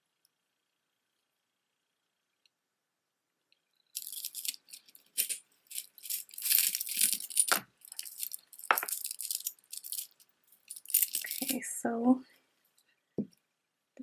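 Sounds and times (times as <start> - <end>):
beads and jewelry clinking: 3.9 - 11.7.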